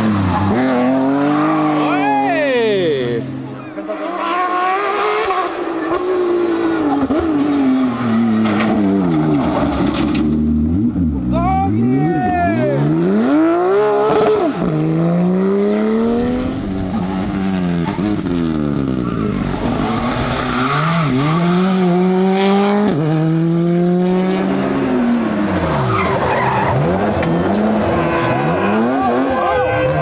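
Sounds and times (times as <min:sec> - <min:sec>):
rally car engine revving: 0:00.0 - 0:30.0
tyres skidding: 0:15.5 - 0:23.3, 0:24.4 - 0:30.0.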